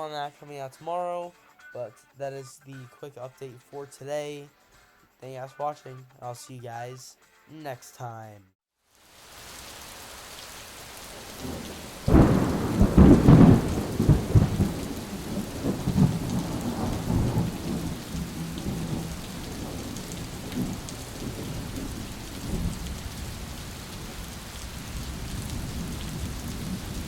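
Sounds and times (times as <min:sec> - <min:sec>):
steady rain: 0:08.9 - 0:27.0
rolling thunder: 0:11.2 - 0:27.0.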